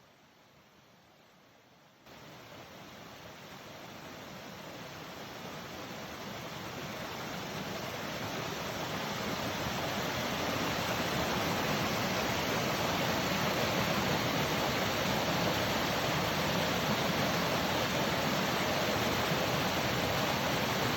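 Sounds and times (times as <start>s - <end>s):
waterfall rushing: 4.8s - 20.9s.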